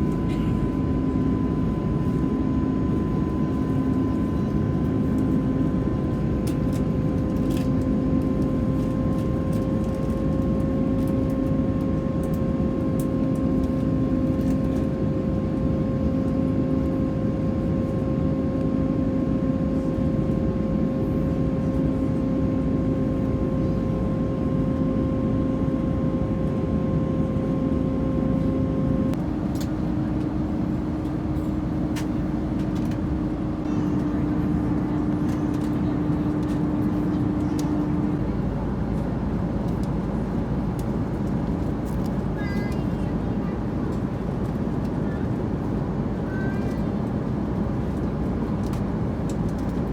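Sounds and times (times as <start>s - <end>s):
jet engines in cabin: 0.0s - 49.9s.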